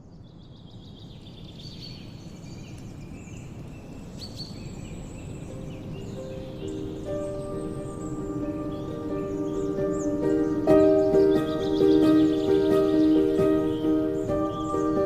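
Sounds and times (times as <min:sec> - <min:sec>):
birds chirping and trilling: 0:00.0 - 0:15.0
soft sustained music tones: 0:00.0 - 0:15.0
low background rush: 0:01.1 - 0:15.0.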